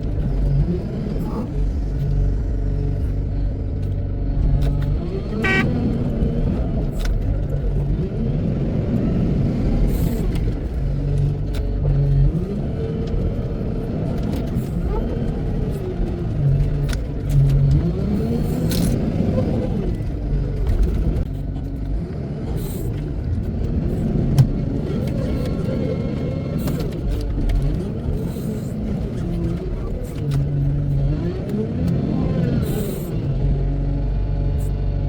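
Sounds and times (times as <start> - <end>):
wheel loader diesel engine revving: 0.2 - 6.8.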